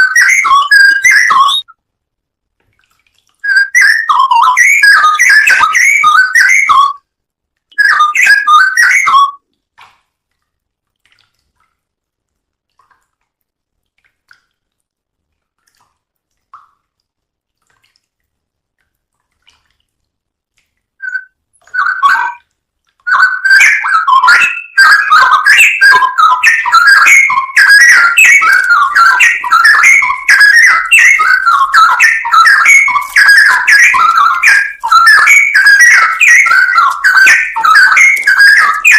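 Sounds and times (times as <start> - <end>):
songbird warbling and chirping: 0.0 - 1.7, 3.5 - 7.0, 23.1 - 38.9.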